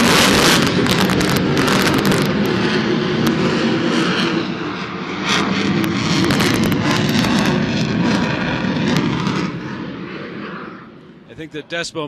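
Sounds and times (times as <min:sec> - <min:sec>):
jet engines roaring with crackles: 0:00.0 - 0:12.0.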